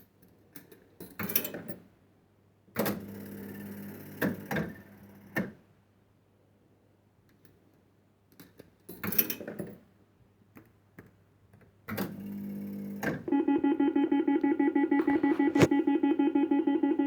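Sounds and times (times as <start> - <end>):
pulsing electronic chord: 13.3 - 17.0
stepped electronic tone sequence: 13.3 - 17.0.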